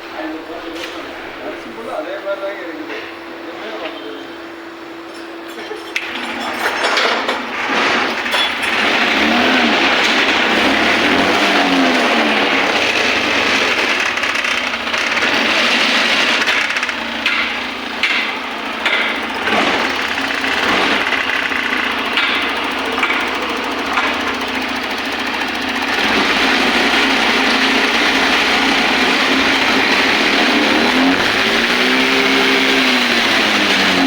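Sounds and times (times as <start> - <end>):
scooter engine running: 8.2 - 34.0.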